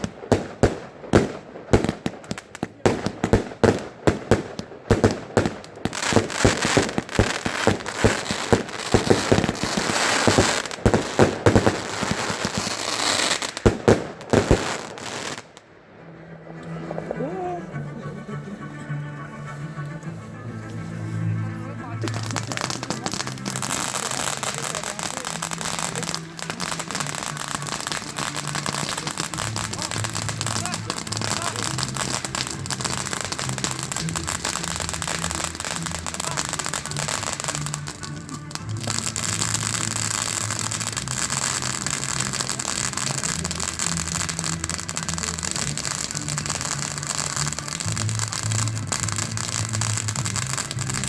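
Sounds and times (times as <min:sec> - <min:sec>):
fireworks crackling: 0:00.0 - 0:51.0
music with a bass line: 0:43.8 - 0:51.0.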